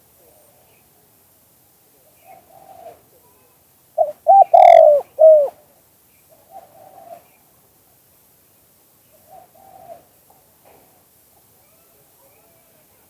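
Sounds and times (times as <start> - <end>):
faint dove cooing: 2.2 - 5.6
dove cooing: 4.0 - 5.6.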